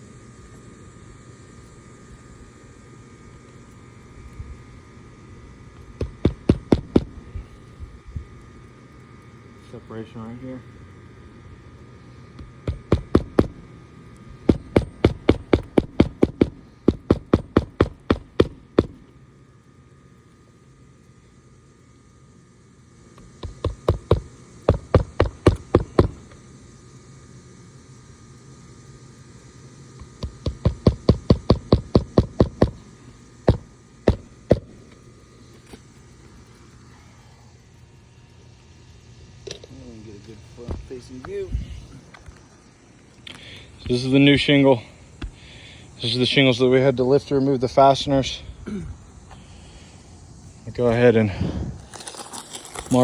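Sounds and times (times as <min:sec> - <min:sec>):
hammer striking roofing nails: 0:06.0 - 0:07.2, 0:12.6 - 0:13.6, 0:14.4 - 0:19.0, 0:23.3 - 0:26.2, 0:30.0 - 0:32.8, 0:33.4 - 0:34.8.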